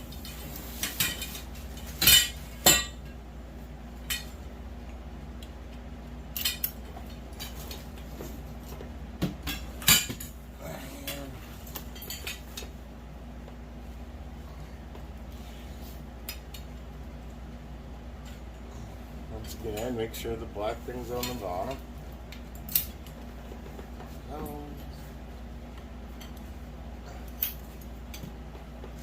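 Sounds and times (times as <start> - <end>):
steady low hum: 0.0 - 29.0
metal poles clinking and knocking: 0.2 - 3.2.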